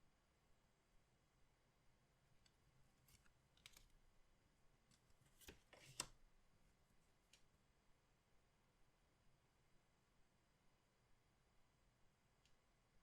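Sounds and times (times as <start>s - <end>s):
trading cards clicking and rustling: 5.0s - 6.1s.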